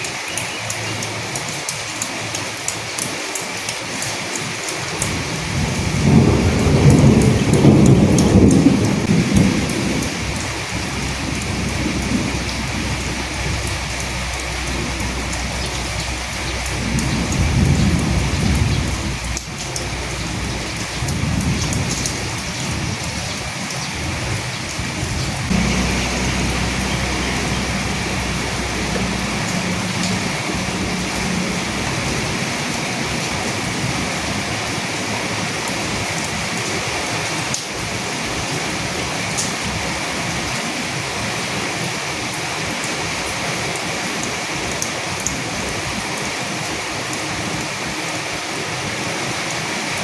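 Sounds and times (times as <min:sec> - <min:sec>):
rain drops ticking: 0:00.0 - 0:50.0
thunder rumbling: 0:05.0 - 0:36.2.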